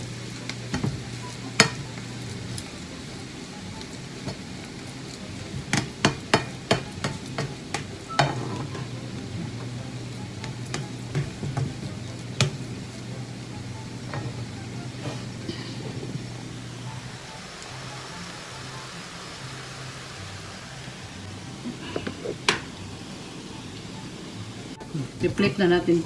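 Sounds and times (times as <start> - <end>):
hash sizzling in a pan: 0.0 - 26.0
utensil knocking against pan: 5.5 - 8.9, 10.4 - 12.7.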